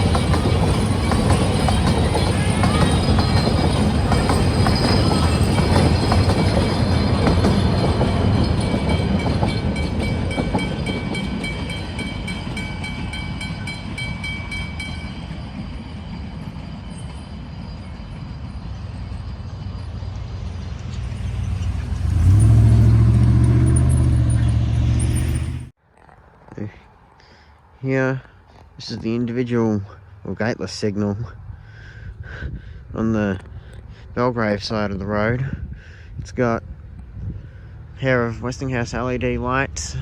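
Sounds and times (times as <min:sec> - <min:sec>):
vehicle engine humming: 0:00.0 - 0:13.5, 0:18.4 - 0:25.8
crossing bells ringing: 0:00.0 - 0:25.7
steam train rumbling: 0:00.0 - 0:25.7.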